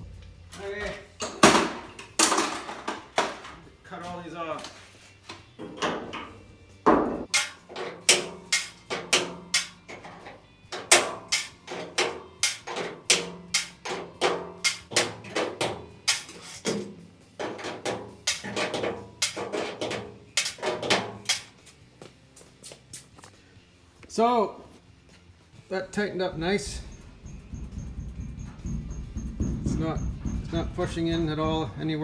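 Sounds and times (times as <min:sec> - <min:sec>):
hammer striking sheet metal: 0:06.9 - 0:10.1, 0:10.7 - 0:21.6, 0:26.4 - 0:31.9.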